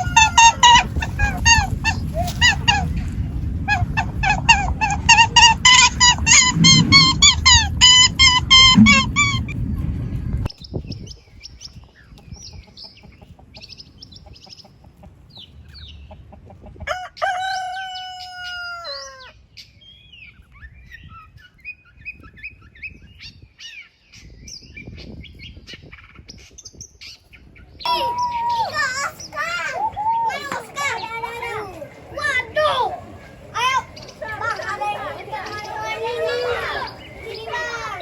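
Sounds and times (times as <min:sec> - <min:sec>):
rooster crowing: 0:16.9 - 0:19.3.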